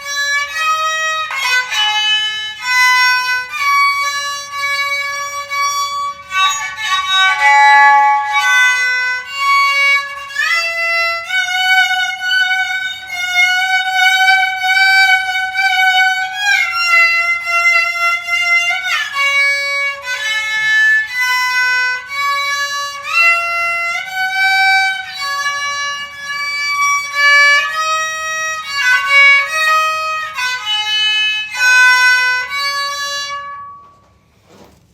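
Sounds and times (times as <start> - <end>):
bowed fiddle solo melody: 0.0 - 34.6.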